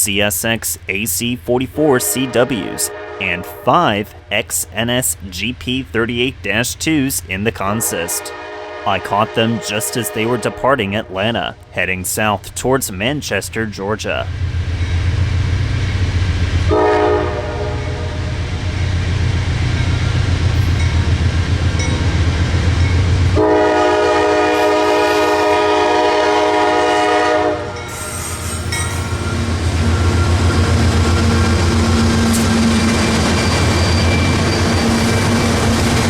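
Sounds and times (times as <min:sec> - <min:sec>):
locomotive engines rumbling: 0:00.0 - 0:36.0
locomotive air horn: 0:01.9 - 0:03.8, 0:07.7 - 0:10.8, 0:16.7 - 0:18.4, 0:23.4 - 0:33.0
train wheels clicking on rails: 0:27.9 - 0:36.0.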